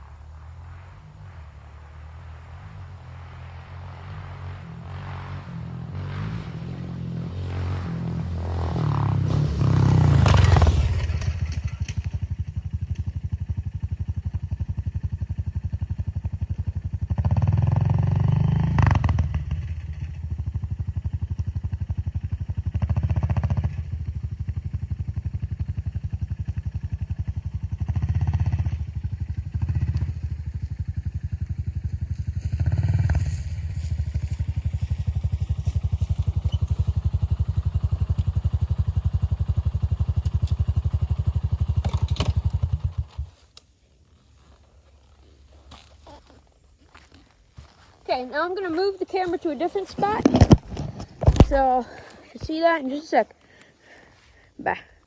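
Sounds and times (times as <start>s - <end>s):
dirt bike engine revving: 1.9s - 12.8s, 16.9s - 20.6s, 21.7s - 43.3s, 46.9s - 53.2s.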